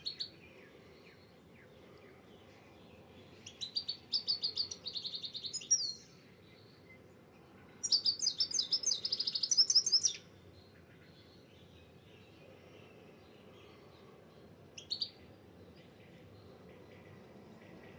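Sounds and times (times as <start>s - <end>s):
songbird singing trilled phrases: 0.0s - 1.8s, 3.4s - 7.1s, 7.8s - 12.3s, 14.8s - 16.6s.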